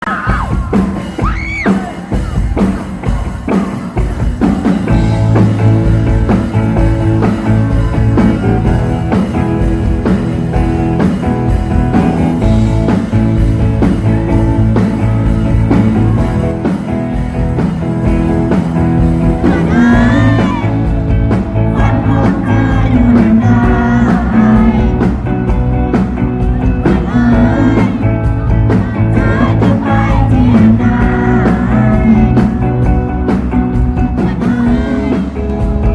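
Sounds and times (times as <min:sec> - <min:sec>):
rock band playing live: 0:00.0 - 0:35.9
person singing: 0:18.8 - 0:35.9.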